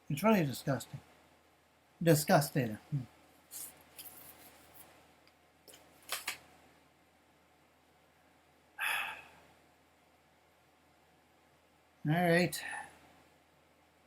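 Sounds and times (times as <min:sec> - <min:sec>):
soft rustles and clicks: 0:03.2 - 0:06.6.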